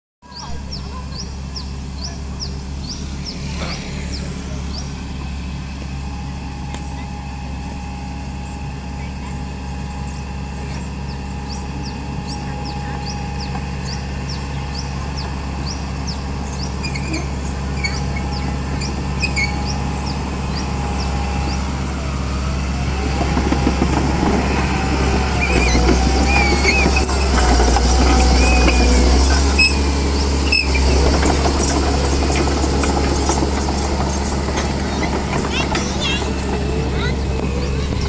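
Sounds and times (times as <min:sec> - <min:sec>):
bulldozer diesel engine drone: 0:00.3 - 0:38.0
high wavering machine squeals: 0:15.6 - 0:22.1, 0:24.1 - 0:38.0.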